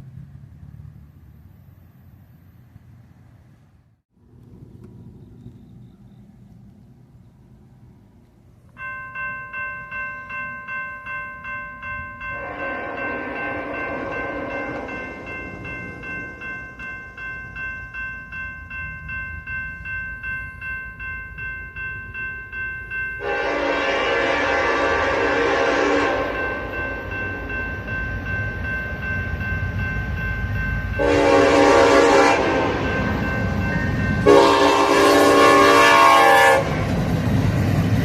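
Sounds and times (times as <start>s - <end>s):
locomotive horn chord: 12.3s - 15.3s, 23.2s - 27.3s, 31.0s - 33.5s, 34.2s - 36.9s.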